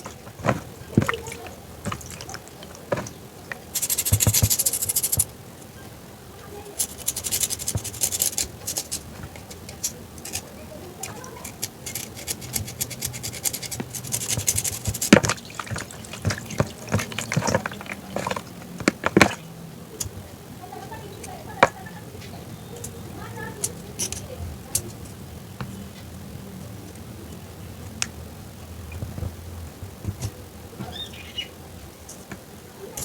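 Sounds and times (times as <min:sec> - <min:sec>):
crisp crunching: 0:00.0 - 0:05.3, 0:06.8 - 0:19.5.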